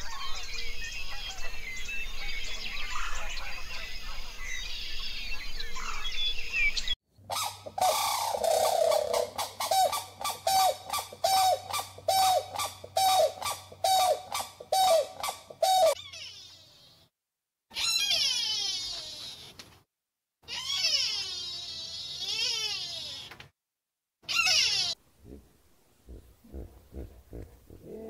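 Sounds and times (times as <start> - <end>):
birds chirping and singing: 0.0 - 16.0.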